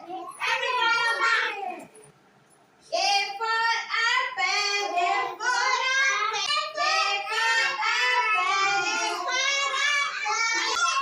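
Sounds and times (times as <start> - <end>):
young child singing: 4.0 - 11.0.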